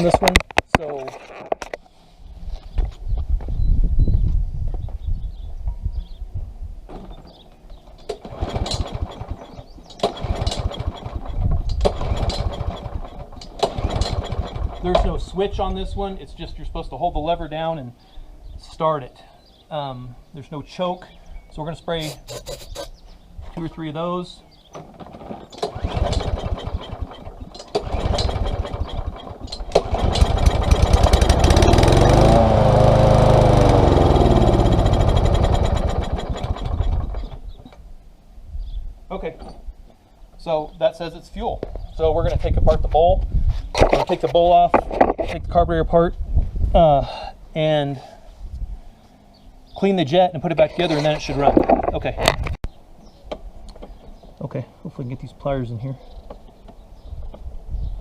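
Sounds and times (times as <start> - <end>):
engine turning over: 8.0 - 15.4, 24.8 - 37.6
mower recoil starter pulled: 8.0 - 15.4, 24.7 - 37.5, 50.7 - 52.5.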